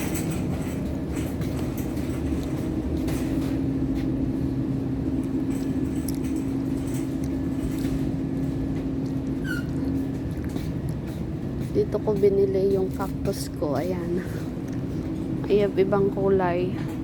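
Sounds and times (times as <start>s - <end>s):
machinery and ventilation hum: 0.0s - 17.0s.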